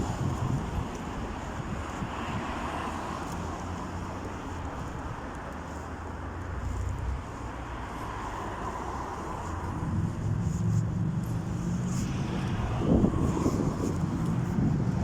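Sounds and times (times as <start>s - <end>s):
car traffic road noise: 0.0s - 15.0s
vehicle passing by: 8.0s - 15.0s.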